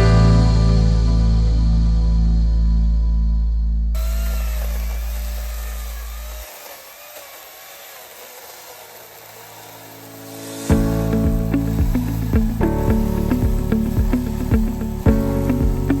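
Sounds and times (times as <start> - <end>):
held music chord: 0.0 - 3.9, 10.4 - 16.0
power saw whining: 4.0 - 16.0.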